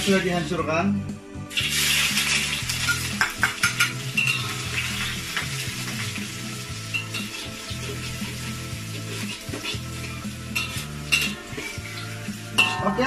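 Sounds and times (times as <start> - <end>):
ginger sizzling in hot oil: 0.0 - 0.5, 1.5 - 13.0
metal spatula scraping wok: 6.8 - 13.0.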